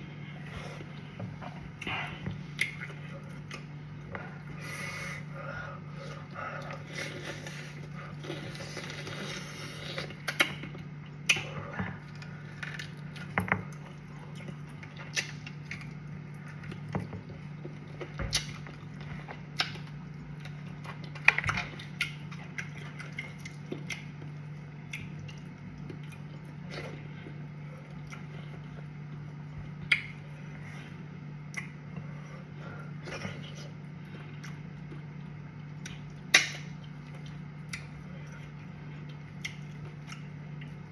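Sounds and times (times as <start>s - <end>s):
steady low hum: 0.0s - 40.9s
mouth smacks and chewing: 6.1s - 30.3s, 33.0s - 40.8s.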